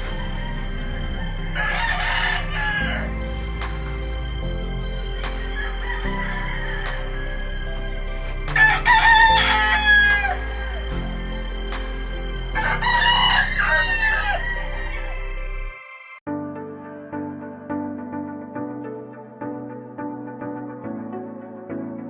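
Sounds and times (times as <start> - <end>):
rooster crowing: 0.0 - 3.6, 4.8 - 11.7, 12.4 - 16.1
background music: 0.0 - 22.0.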